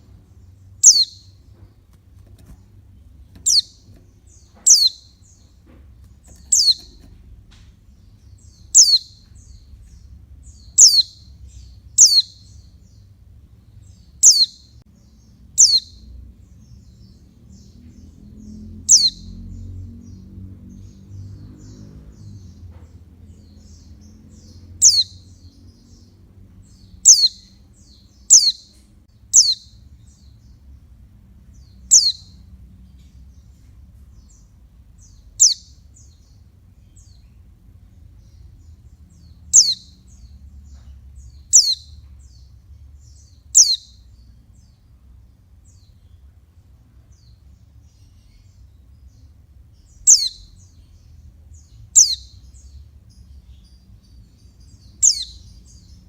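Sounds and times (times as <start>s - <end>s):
bird giving high downward calls: 0.8s - 1.4s, 3.3s - 5.4s, 6.3s - 7.1s, 8.4s - 9.6s, 10.5s - 11.3s, 11.9s - 12.6s, 14.2s - 14.6s, 15.6s - 16.0s, 18.8s - 19.5s, 24.1s - 25.4s, 26.7s - 29.8s, 31.8s - 32.4s, 35.4s - 35.8s, 39.5s - 40.0s, 41.3s - 41.9s, 43.5s - 44.0s, 50.0s - 50.6s, 51.9s - 52.4s, 55.0s - 55.5s.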